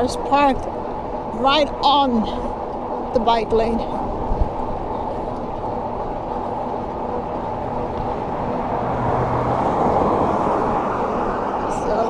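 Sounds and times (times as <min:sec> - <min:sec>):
wind rushing over microphone: 0:02.6 - 0:12.0.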